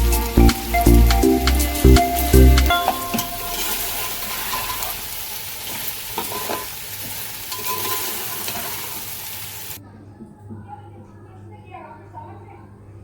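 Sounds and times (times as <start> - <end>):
background music: 0.0 - 4.0
food sizzling in a pan: 0.0 - 9.8.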